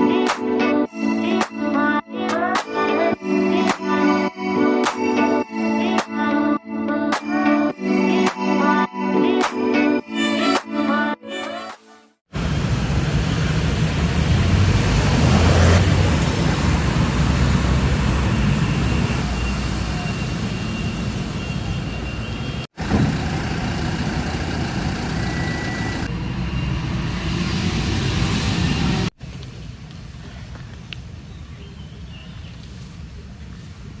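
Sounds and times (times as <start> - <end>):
road vehicle rumble and hiss: 12.3 - 34.0.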